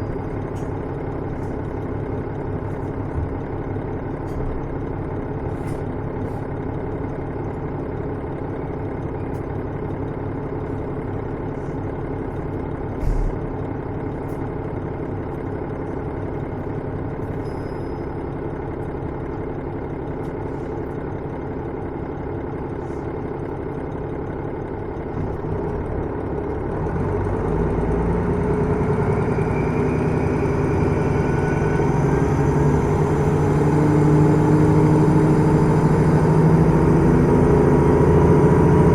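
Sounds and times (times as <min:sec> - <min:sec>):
diesel engine running: 0:00.0 - 0:38.9
thump: 0:13.0 - 0:13.5.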